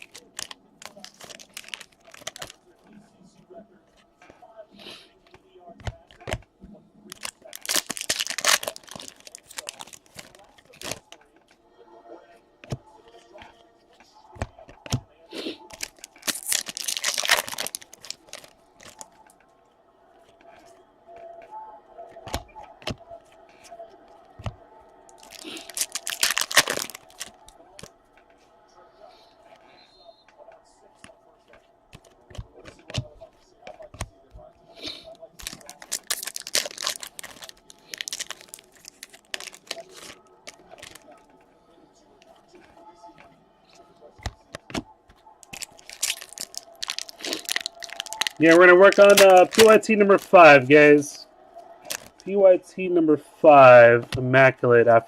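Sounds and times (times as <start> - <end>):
foil wrapper tearing and crinkling: 0.0 - 2.6, 7.1 - 11.1, 15.6 - 19.1, 25.2 - 27.9, 35.2 - 41.2, 45.4 - 50.9, 51.8 - 52.2.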